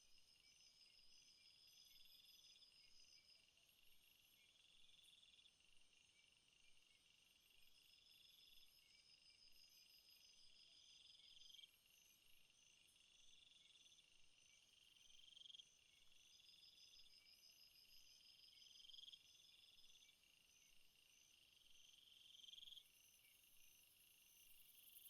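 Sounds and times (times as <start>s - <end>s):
pulsed cricket chirping: 7.0s - 25.0s.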